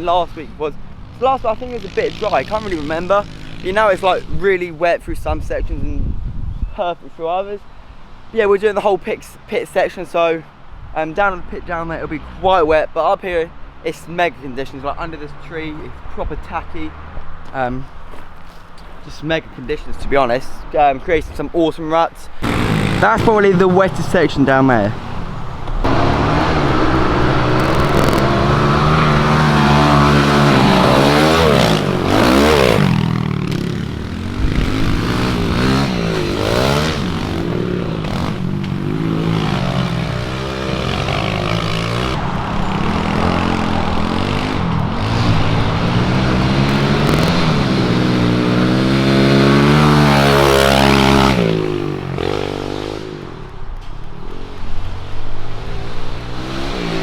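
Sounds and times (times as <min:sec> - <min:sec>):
motorbike engine revving: 0:01.0 - 0:04.4, 0:22.4 - 0:25.2, 0:25.8 - 0:53.6, 0:54.3 - 0:57.0.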